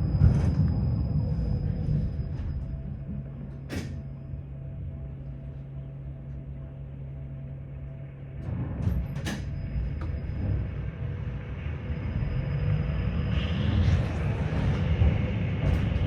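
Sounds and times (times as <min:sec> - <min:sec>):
tram wheels rumbling on rails: 0:00.0 - 0:06.7, 0:08.0 - 0:16.0
low electrical hum: 0:00.0 - 0:12.5.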